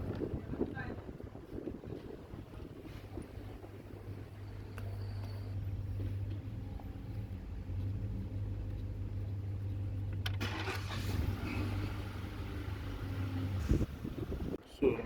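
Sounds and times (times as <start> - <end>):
low engine-like hum: 2.5 - 14.6.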